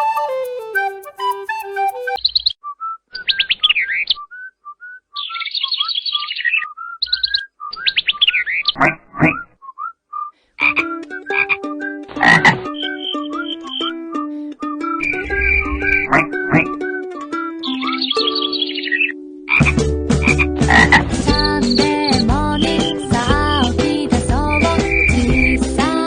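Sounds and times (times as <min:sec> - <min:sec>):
toy musical notes: 0:00.0 - 0:02.2, 0:10.7 - 0:19.6
high chirps and trills: 0:10.7 - 0:19.7
recorded frog croaking: 0:12.1 - 0:13.0, 0:18.6 - 0:21.0.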